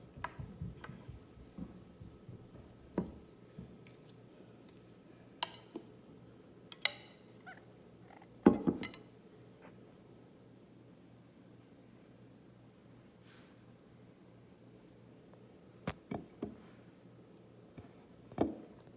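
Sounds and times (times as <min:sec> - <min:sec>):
tableware knocks and clicks: 0:08.4 - 0:09.0.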